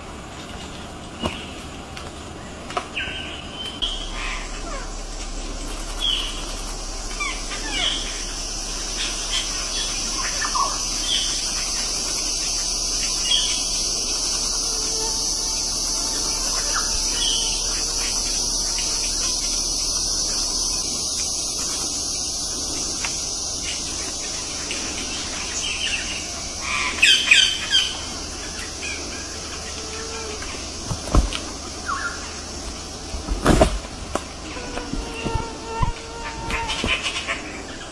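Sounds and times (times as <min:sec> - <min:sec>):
birds chirping: 0:00.0 - 0:37.9
high-pitched background hiss: 0:00.0 - 0:37.9
dull thumps: 0:30.1 - 0:37.0.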